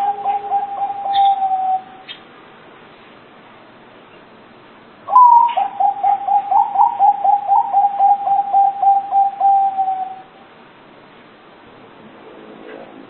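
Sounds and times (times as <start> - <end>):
dove cooing: 0.0 - 2.2, 5.1 - 10.3.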